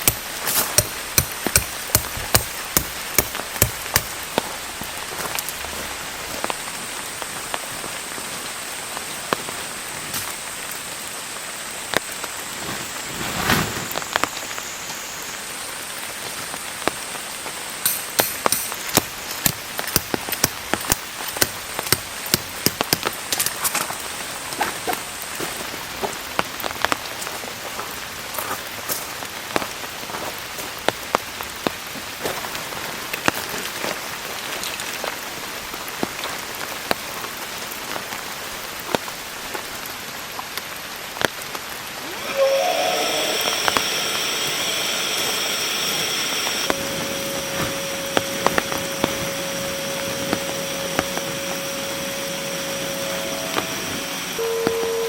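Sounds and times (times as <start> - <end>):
heavy rain falling: 0.0 - 55.0
small electric motor whining: 42.1 - 55.0.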